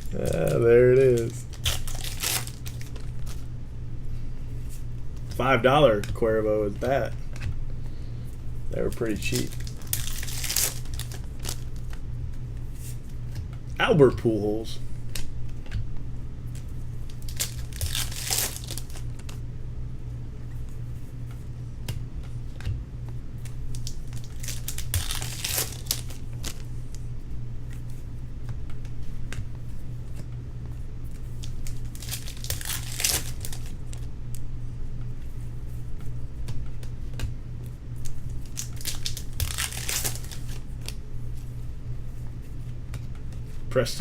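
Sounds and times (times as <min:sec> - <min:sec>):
wrappers tearing and crinkling: 0:00.0 - 0:03.5, 0:08.8 - 0:11.9, 0:17.0 - 0:19.4, 0:23.6 - 0:26.7, 0:31.4 - 0:34.1, 0:38.0 - 0:41.0
low electrical hum: 0:00.0 - 0:44.0.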